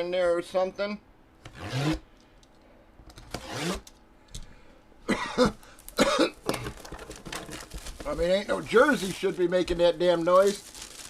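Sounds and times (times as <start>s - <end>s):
man coughing: 5.0s - 6.8s
man clearing throat: 5.1s - 6.8s.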